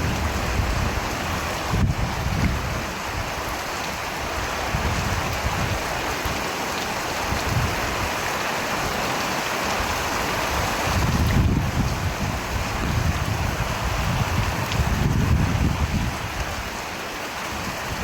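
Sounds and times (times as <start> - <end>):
heavy rain hissing: 0.0 - 18.0.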